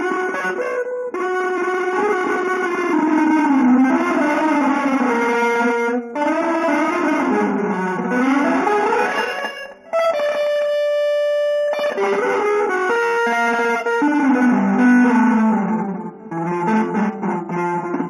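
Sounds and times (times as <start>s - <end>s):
electric guitar playing fast runs: 1.6s - 10.9s.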